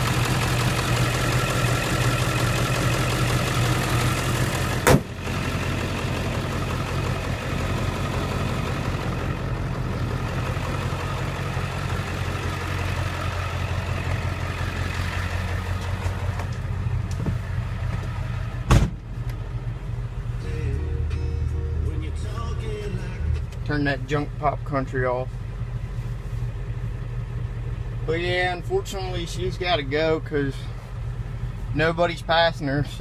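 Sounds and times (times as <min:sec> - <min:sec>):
diesel engine idling: 0:00.0 - 0:33.0.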